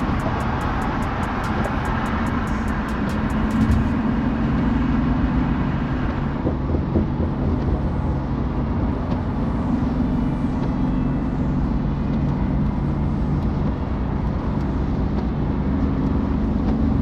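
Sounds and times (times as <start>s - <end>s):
car engine running: 0.0s - 9.4s
road noise: 0.0s - 17.0s.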